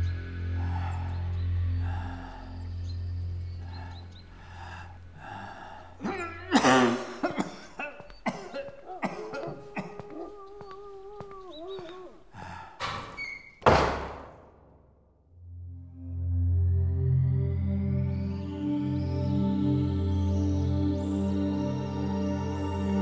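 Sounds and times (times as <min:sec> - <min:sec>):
man coughing hard: 0:06.0 - 0:12.1
man groaning: 0:06.0 - 0:12.2.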